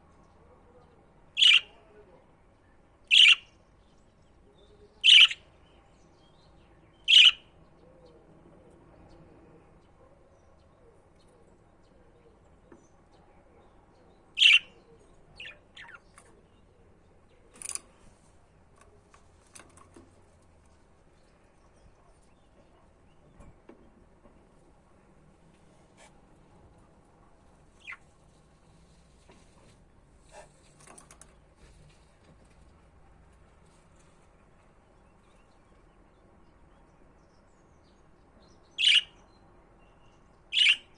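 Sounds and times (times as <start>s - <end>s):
budgerigars chirping: 3.1s - 3.4s, 7.1s - 7.4s, 14.4s - 14.7s, 38.8s - 39.1s, 40.5s - 40.9s.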